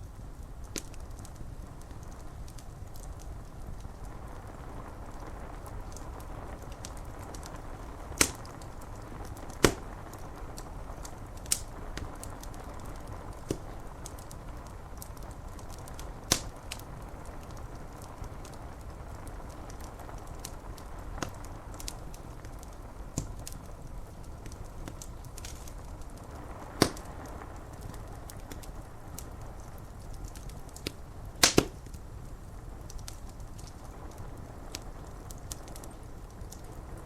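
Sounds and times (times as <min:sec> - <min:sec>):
rain on window glass: 0:00.0 - 0:37.0
wood fire crackling: 0:00.0 - 0:37.0.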